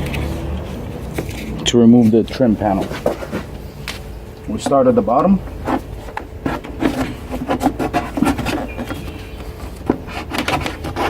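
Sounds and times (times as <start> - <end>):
trim tool scraping and clicking: 5.5 - 11.0.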